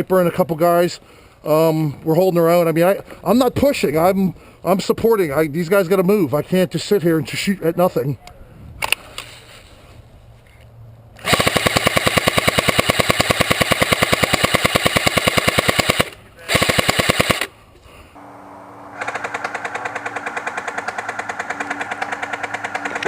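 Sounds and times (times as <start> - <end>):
airsoft gun full-auto fire: 11.2 - 17.5, 19.0 - 23.0.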